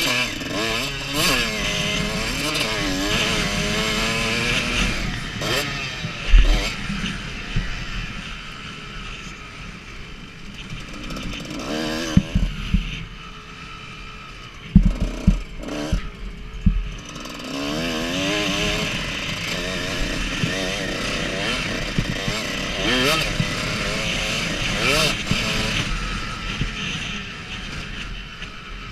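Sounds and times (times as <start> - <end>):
dirt bike engine revving: 0.0 - 28.9
sharp thumps: 14.7 - 17.2.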